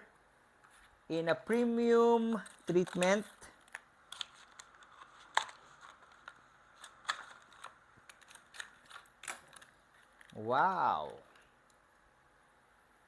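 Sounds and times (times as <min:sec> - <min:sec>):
plastic package crackling: 0:02.2 - 0:10.4.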